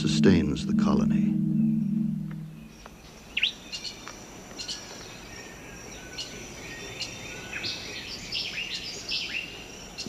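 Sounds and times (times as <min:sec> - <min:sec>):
high insect drone: 0:00.0 - 0:02.9
downward-sweeping bird calls: 0:00.0 - 0:04.0.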